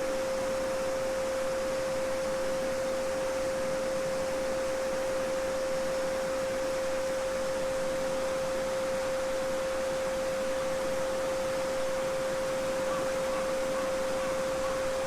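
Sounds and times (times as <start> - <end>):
babbling brook: 11.9 - 15.0.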